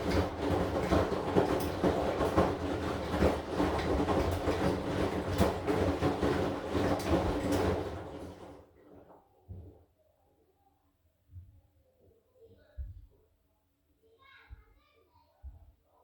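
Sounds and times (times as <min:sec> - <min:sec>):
washing machine drum clatter: 0:00.0 - 0:09.1
washing machine motor humming: 0:00.0 - 0:09.1.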